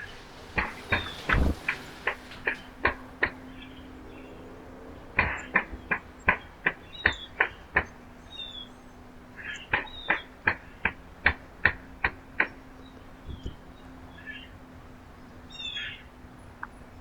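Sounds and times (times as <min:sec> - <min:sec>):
birds pecking at feeder: 0:00.0 - 0:03.4.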